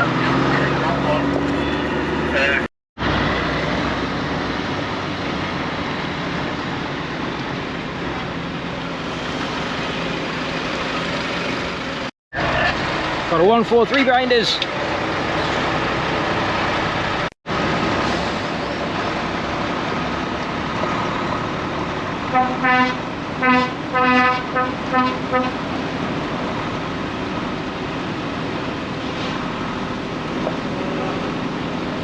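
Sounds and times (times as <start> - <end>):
truck running on road: 0.0 - 32.0
air horn blasts: 22.3 - 25.6.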